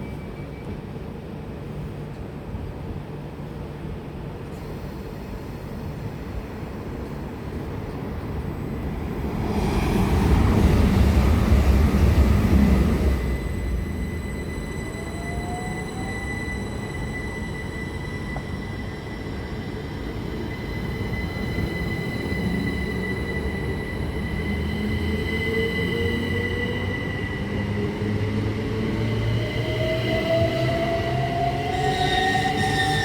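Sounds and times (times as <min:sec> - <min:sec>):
train rumble: 0:00.0 - 0:33.0
electric train traction whine: 0:08.2 - 0:33.0
high whistling tones: 0:13.1 - 0:27.9, 0:29.1 - 0:33.0.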